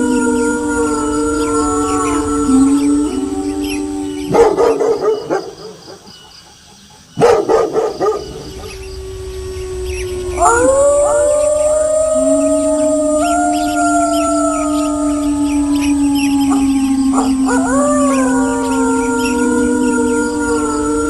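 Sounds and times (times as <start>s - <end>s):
wolves howling: 0.0s - 6.2s, 7.2s - 21.0s
wolves barking and yipping: 3.6s - 9.0s, 13.6s - 19.4s.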